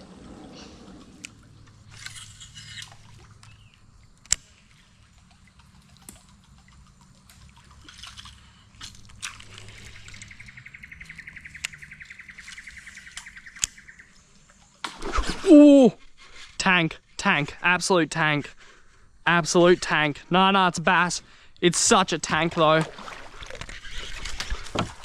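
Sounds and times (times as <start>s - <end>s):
water dripping and trickling: 0.8s - 14.9s, 21.6s - 25.0s.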